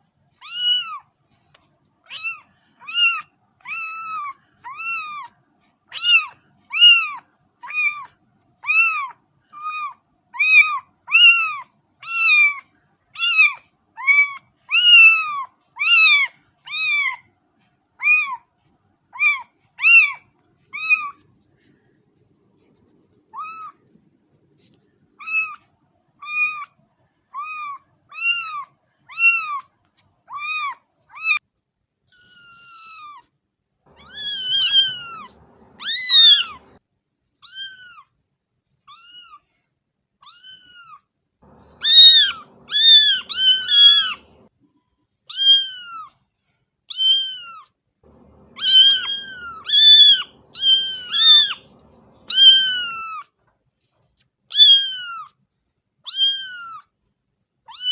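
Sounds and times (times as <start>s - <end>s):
cat meowing: 0.4s - 1.0s, 2.0s - 5.3s, 5.9s - 12.6s, 13.2s - 17.2s, 18.0s - 18.4s, 19.2s - 20.2s, 20.8s - 21.2s, 23.4s - 23.8s, 24.6s - 26.7s, 27.4s - 29.7s, 30.3s - 31.4s, 32.1s - 33.2s, 33.9s - 36.8s, 37.4s - 38.1s, 38.9s - 39.4s, 40.2s - 44.5s, 45.3s - 46.1s, 46.9s - 53.3s, 54.5s - 55.3s, 56.1s - 56.9s, 57.7s - 57.9s.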